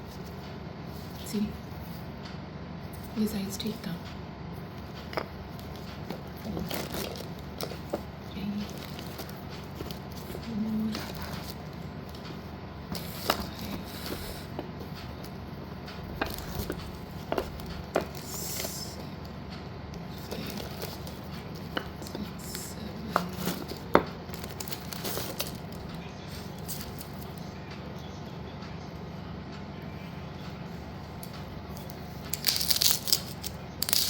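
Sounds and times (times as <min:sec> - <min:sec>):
steady low hum: 0:00.0 - 0:34.0
packet rustling: 0:05.4 - 0:19.4, 0:20.0 - 0:27.4, 0:31.8 - 0:34.0.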